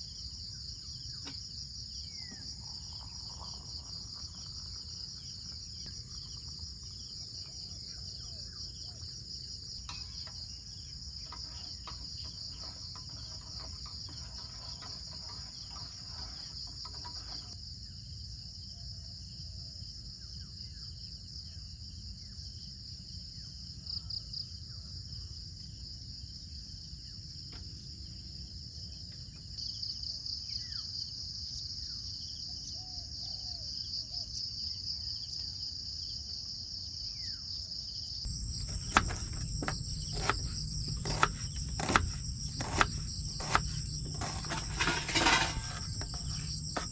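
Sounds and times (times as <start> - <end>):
insects trilling: 0.0 - 18.1, 29.6 - 46.9.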